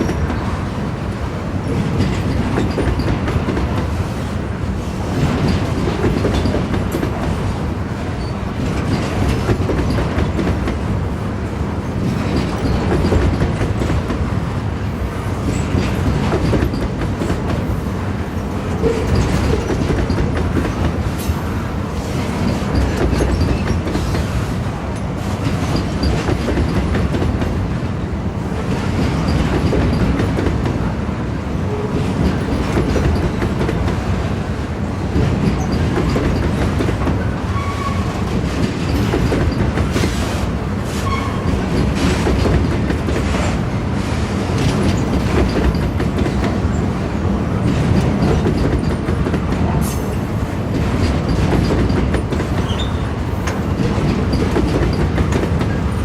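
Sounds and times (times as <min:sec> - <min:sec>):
freight train rumbling: 0:00.0 - 0:56.0
wheels clacking over rail joints: 0:01.6 - 0:04.0, 0:05.1 - 0:11.0, 0:11.9 - 0:14.3, 0:15.4 - 0:27.8, 0:28.6 - 0:31.0, 0:31.7 - 0:34.4, 0:35.0 - 0:56.0.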